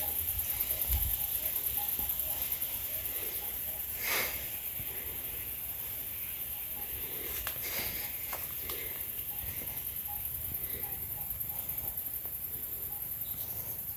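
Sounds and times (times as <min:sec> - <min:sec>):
steady high hiss: 0:00.0 - 0:13.9
twigs and leaves ticking: 0:07.2 - 0:09.2.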